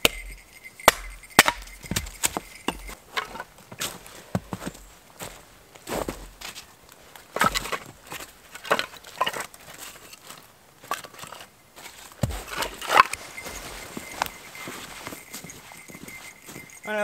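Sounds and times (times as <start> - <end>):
footsteps crunching in snow: 0.2 - 3.0, 3.6 - 6.7, 11.8 - 17.0.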